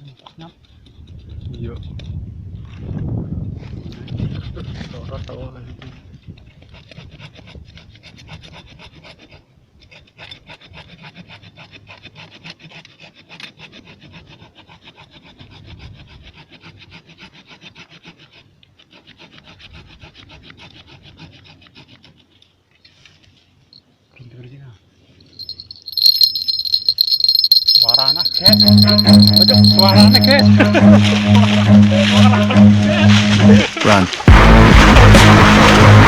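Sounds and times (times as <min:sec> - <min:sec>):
saw cutting through wood: 0:06.4 - 0:22.4.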